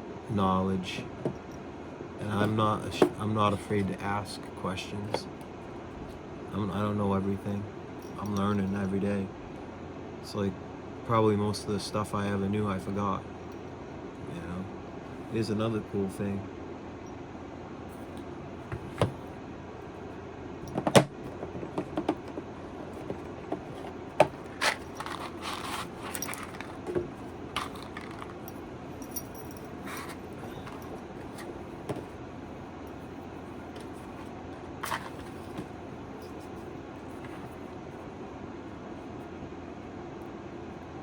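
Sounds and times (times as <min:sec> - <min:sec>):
rustling and clinking: 0:20.6 - 0:32.2, 0:33.7 - 0:37.6
hard objects clicking and knocking: 0:20.7 - 0:28.5.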